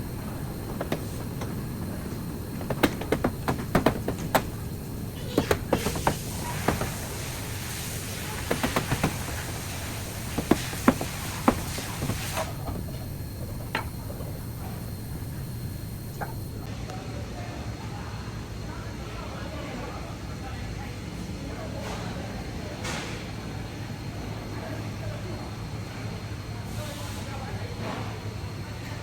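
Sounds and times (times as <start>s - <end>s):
sharp knocks and clicks: 0.0s - 16.7s
steady hiss: 0.0s - 16.7s.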